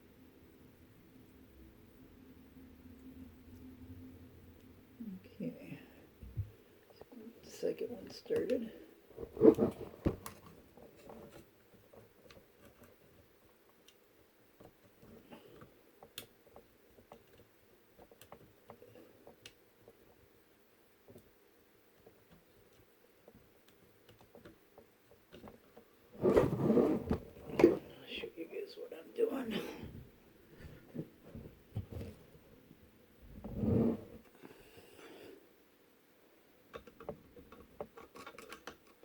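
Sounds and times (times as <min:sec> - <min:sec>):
small metal nuts clicking and tapping: 0:36.7 - 0:39.0.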